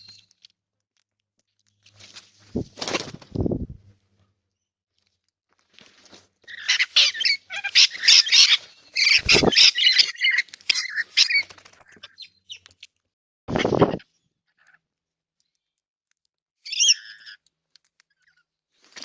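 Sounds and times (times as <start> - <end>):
birds squawking: 6.5 - 12.6, 16.7 - 17.4.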